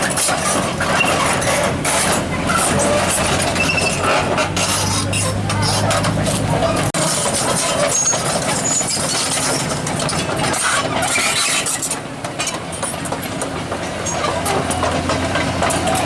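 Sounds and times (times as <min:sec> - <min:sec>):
truck engine idling: 0:00.0 - 0:10.4
busy mixed background noise: 0:00.0 - 0:16.0.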